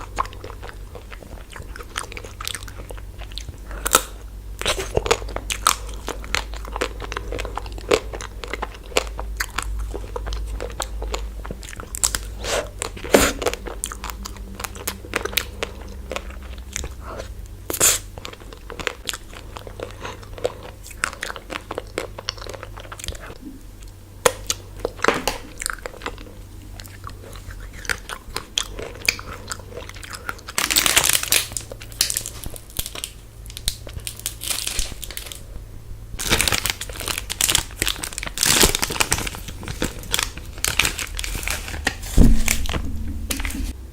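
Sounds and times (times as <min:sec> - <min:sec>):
crunchy biting and chewing: 0:00.0 - 0:43.8
wrapper rustle: 0:30.6 - 0:35.4, 0:36.2 - 0:43.8.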